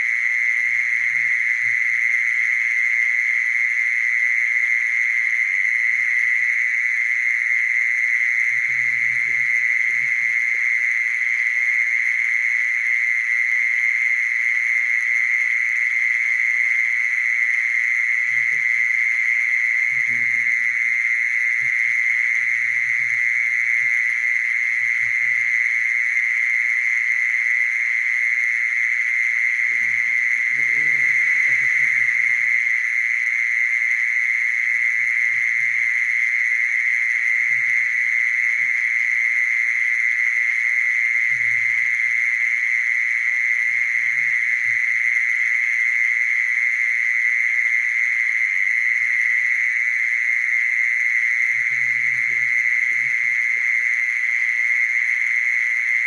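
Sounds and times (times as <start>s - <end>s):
mole cricket trilling: 0.0s - 56.0s.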